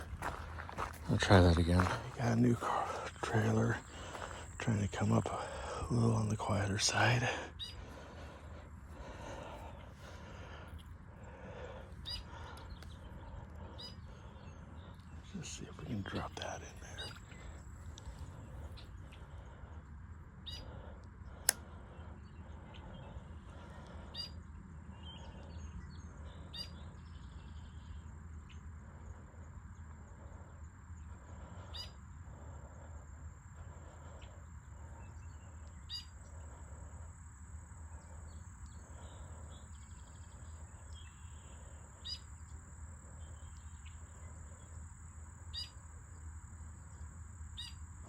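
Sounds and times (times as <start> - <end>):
bird chirps: 0.0 - 10.4, 11.5 - 19.4, 20.4 - 20.8, 21.9 - 28.6, 31.0 - 32.0, 34.1 - 36.6, 37.9 - 44.8, 45.5 - 45.8, 47.6 - 47.8
steady low rumble: 0.0 - 48.0.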